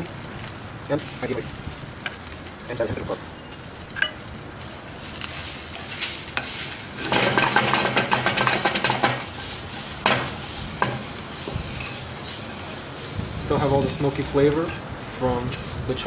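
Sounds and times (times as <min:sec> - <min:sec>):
onions sizzling in a frying pan: 0:00.0 - 0:16.0
frying pan knocking: 0:07.0 - 0:09.4, 0:10.0 - 0:11.8.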